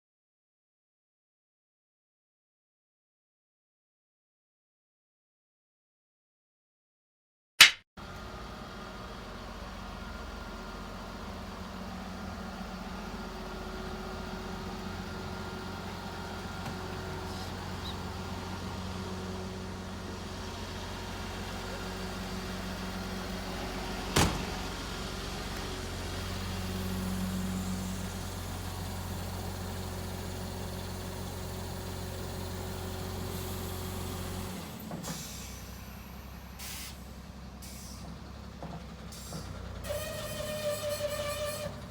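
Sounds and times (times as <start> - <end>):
sharp knock: 7.6 - 7.9
diesel engine running: 8.0 - 41.9.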